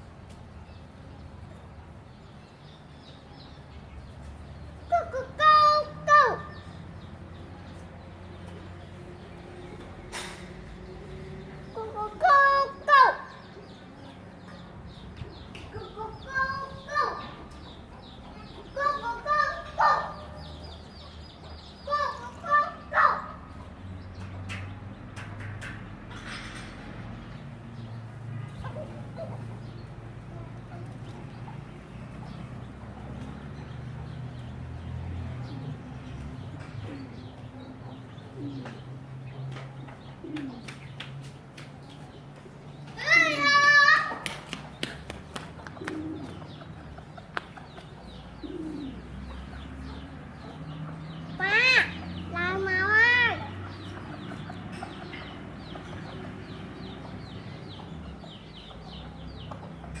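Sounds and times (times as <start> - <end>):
small birds chirping: 0.0 - 60.0
chicks peeping: 10.7 - 25.0, 27.3 - 60.0
pigeons cooing: 36.4 - 40.9, 45.6 - 60.0.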